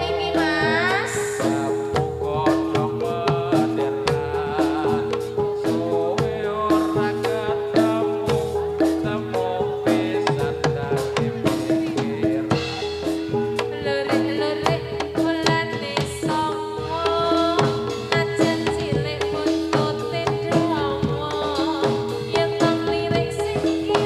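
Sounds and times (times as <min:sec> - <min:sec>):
pitched gamelan percussion: 0:00.0 - 0:16.1
hand drum rhythm: 0:00.0 - 0:24.0
pitch-bending melody: 0:00.0 - 0:24.0.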